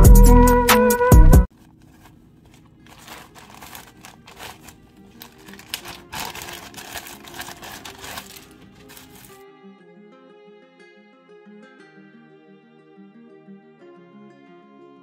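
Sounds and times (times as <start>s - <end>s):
clicks and rustles of handling: 1.5s - 9.4s
faint background music: 1.9s - 15.0s.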